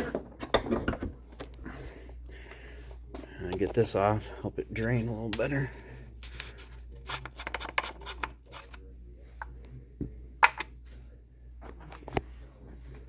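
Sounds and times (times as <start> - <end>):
steady low hum: 1.1 - 7.2
hands rubbing and scraping engine parts: 6.2 - 8.8.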